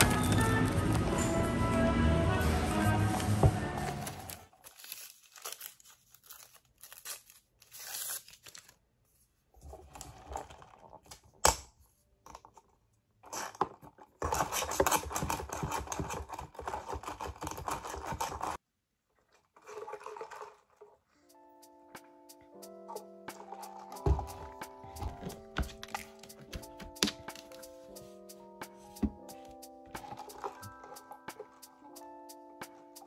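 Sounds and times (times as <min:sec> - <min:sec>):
rustling and crinkling handling noises: 0:02.5 - 0:11.4, 0:23.3 - 0:32.0.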